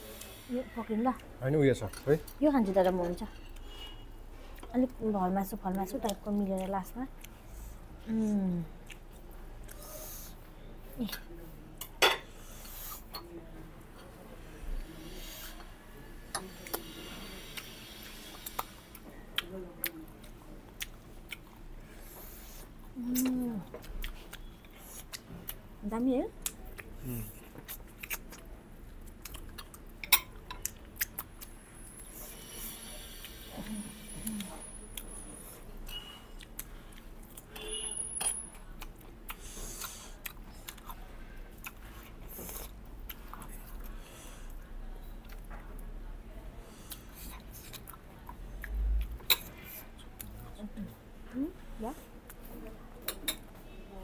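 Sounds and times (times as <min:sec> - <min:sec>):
person chewing food: 0:18.3 - 0:21.7, 0:26.4 - 0:32.1, 0:35.9 - 0:37.5, 0:38.5 - 0:44.6, 0:46.9 - 0:50.4.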